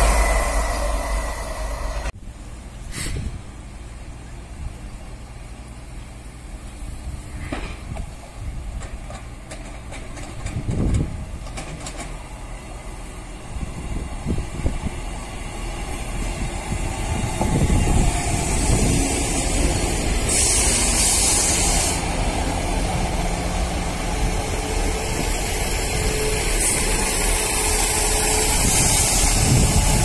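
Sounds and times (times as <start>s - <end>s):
diesel train approaching: 0.0s - 30.0s
wind rumble on microphone: 10.2s - 11.6s, 13.4s - 15.2s, 16.1s - 19.7s, 28.5s - 30.0s.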